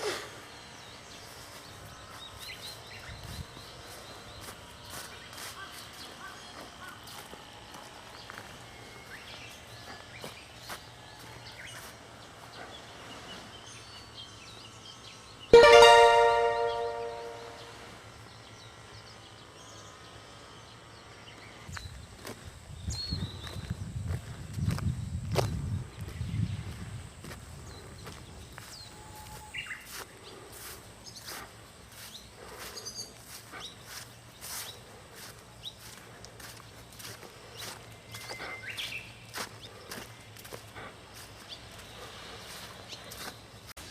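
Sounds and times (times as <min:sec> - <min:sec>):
small birds chirping: 0:00.0 - 0:15.5, 0:17.6 - 0:43.9
ringing piano note: 0:15.6 - 0:17.8
birds chirping: 0:27.6 - 0:43.8.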